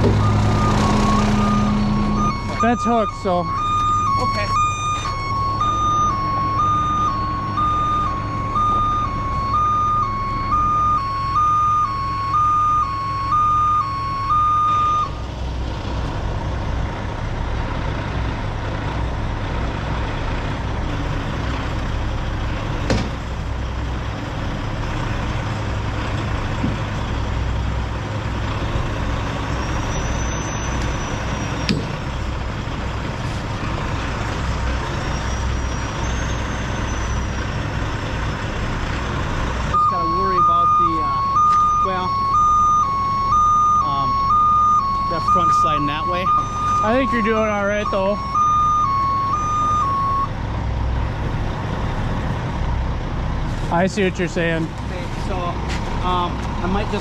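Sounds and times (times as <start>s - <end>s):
truck diesel engine under load: 0.0s - 57.0s
two-tone warning beeper: 0.1s - 15.2s, 39.7s - 50.4s.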